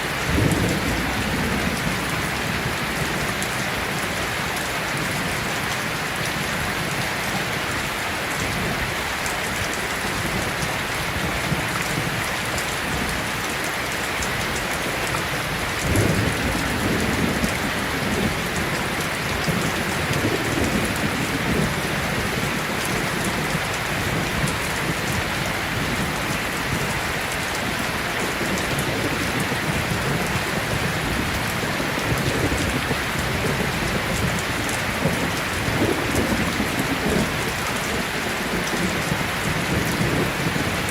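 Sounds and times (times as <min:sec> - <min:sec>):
heavy rain falling: 0:00.0 - 0:40.9
low rumble of thunder: 0:00.1 - 0:07.0, 0:15.5 - 0:27.2, 0:28.1 - 0:40.9.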